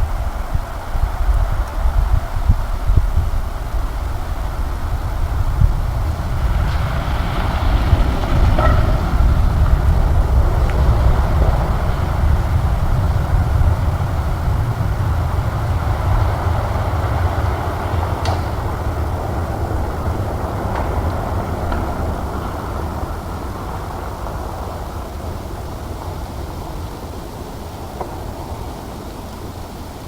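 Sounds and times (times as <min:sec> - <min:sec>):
vehicle driving on gravel: 0:00.0 - 0:30.0.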